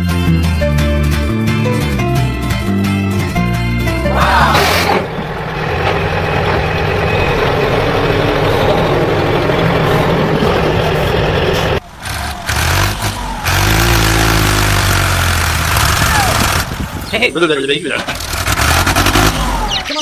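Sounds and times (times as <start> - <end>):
truck engine running: 0.2 - 20.0.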